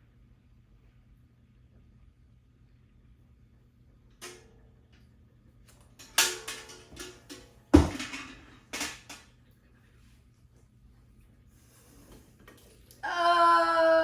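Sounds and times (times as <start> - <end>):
dishes knocking and clattering: 6.0 - 9.2.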